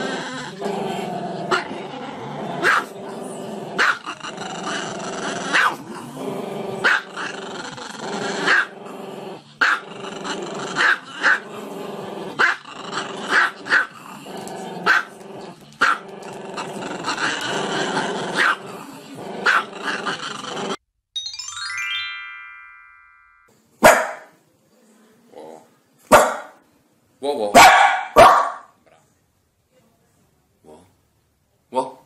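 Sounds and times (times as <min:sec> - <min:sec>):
dog yapping: 0:27.6 - 0:28.7.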